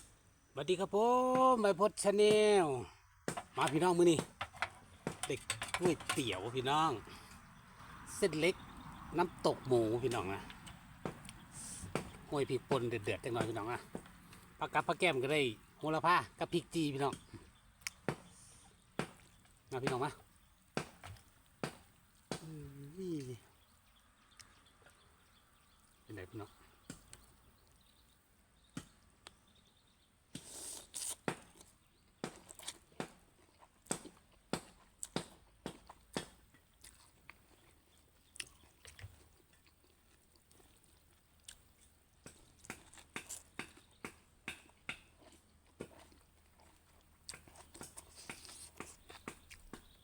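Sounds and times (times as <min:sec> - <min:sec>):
person chewing and crunching food: 0:30.4 - 0:50.0.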